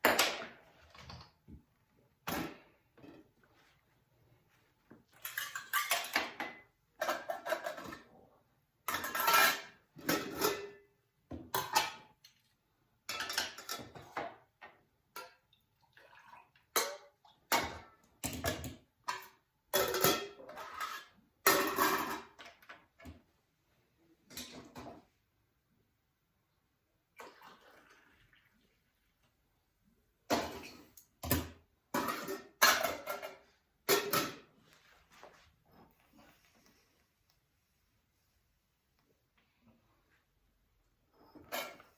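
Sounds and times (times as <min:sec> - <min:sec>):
dishes and cutlery clattering: 0:05.1 - 0:08.2, 0:08.8 - 0:12.4, 0:13.0 - 0:15.5, 0:16.6 - 0:23.2, 0:30.3 - 0:34.5, 0:41.2 - 0:41.9.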